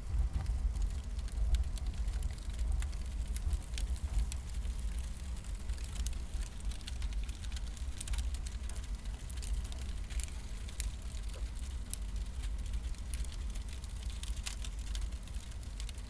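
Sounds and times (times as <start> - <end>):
low rumble: 0.0 - 11.3
firewood crackling and popping: 0.0 - 16.0.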